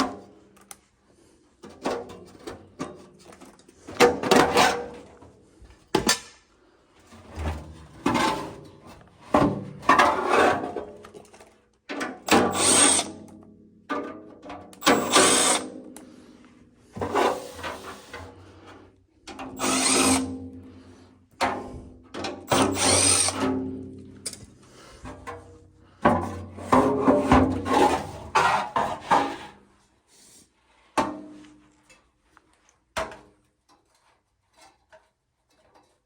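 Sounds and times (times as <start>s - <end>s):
cordless power drill running: 12.4s - 13.1s, 14.9s - 15.6s, 19.6s - 20.3s, 22.5s - 23.4s.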